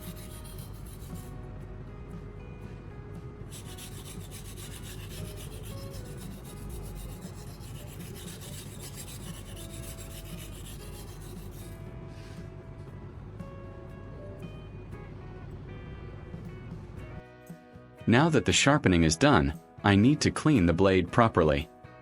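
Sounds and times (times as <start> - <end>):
knife rubbing on whetstone: 0.0 - 1.3, 3.5 - 12.4.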